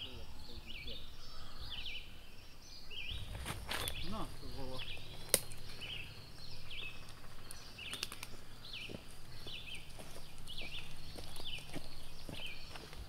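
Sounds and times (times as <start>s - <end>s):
birds chirping: 0.0s - 13.0s
footsteps on leafy path: 3.1s - 13.0s.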